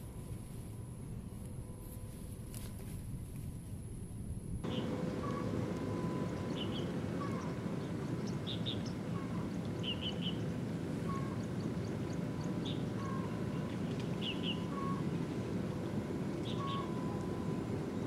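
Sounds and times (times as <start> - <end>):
low rushing background noise: 0.0 - 18.0
low falling bird call: 4.6 - 11.8, 16.4 - 17.3.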